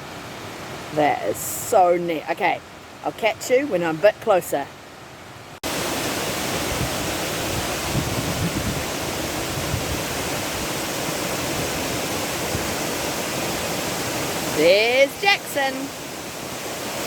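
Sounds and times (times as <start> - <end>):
waterfall rushing: 5.3 - 17.0.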